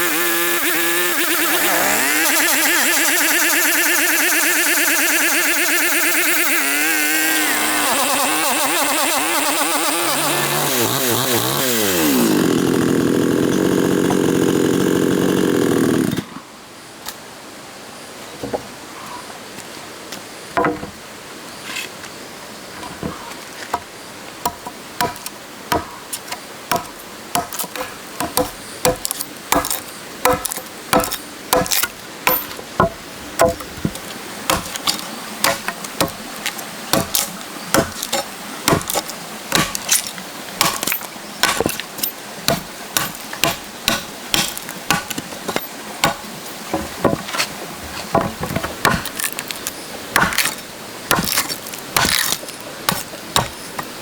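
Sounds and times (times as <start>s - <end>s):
tool knocking on wood: 28.2s - 34.8s.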